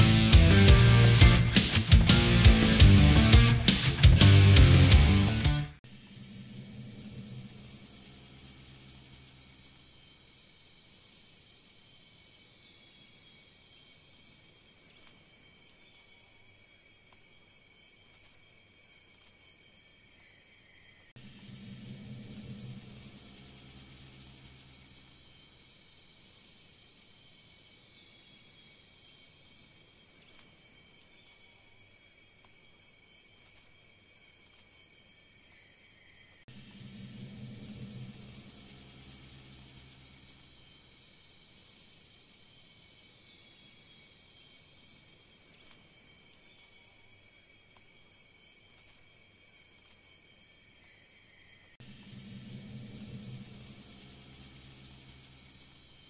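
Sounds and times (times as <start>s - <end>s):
low hum: 0.0s - 9.8s, 21.2s - 25.2s, 36.5s - 40.6s, 51.8s - 56.0s
insects chirping: 5.8s - 56.0s.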